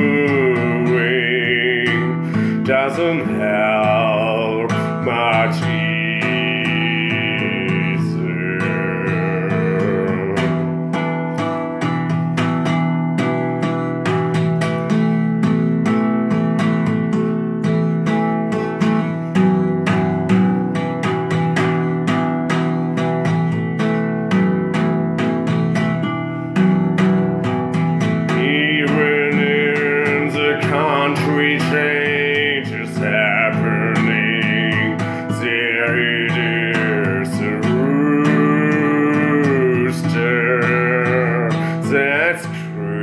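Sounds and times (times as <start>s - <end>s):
strummed guitar music: 0.0s - 43.0s.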